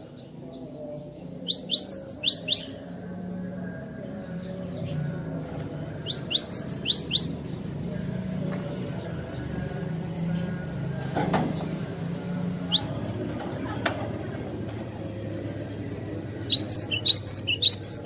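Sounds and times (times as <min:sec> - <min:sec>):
high bird chirp: 0:01.4 - 0:02.8, 0:06.0 - 0:07.7, 0:11.4 - 0:13.4, 0:15.6 - 0:18.0.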